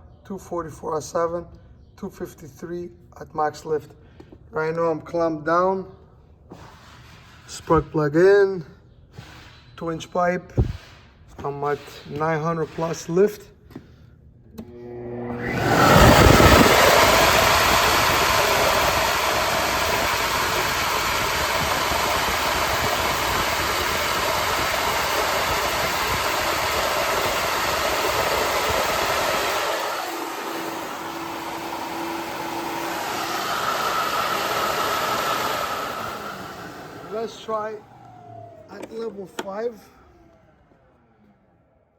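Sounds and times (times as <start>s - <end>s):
vacuum motors rushing air: 14.5s - 41.5s.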